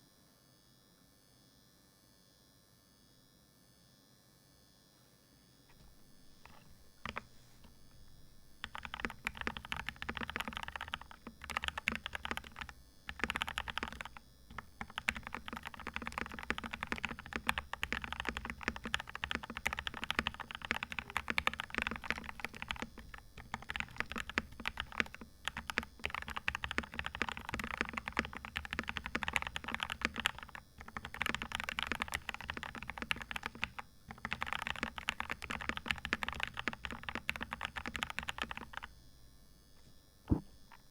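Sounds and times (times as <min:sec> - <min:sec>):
mechanical keyboard typing: 0:06.3 - 0:38.9.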